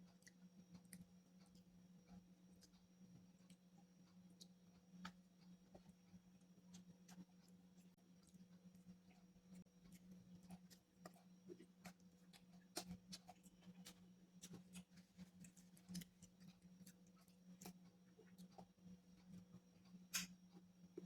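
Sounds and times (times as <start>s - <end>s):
person chewing crunchily: 4.3s - 21.0s.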